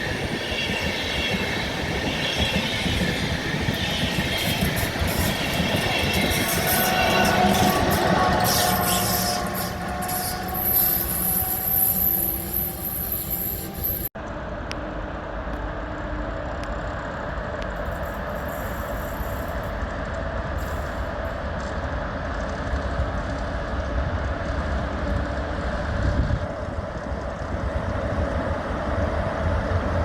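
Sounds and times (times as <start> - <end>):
train whining tones: 0.0 - 14.1
train rumble: 0.0 - 30.0.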